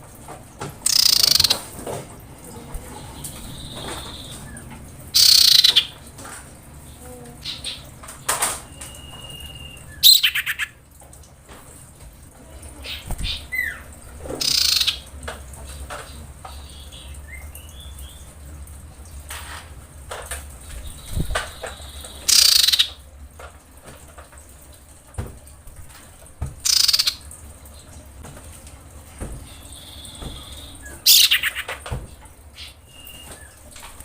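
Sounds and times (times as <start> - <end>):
bird harsh screeching calls: 5.2 - 5.9, 9.2 - 10.8, 14.4 - 15.0, 29.5 - 31.7.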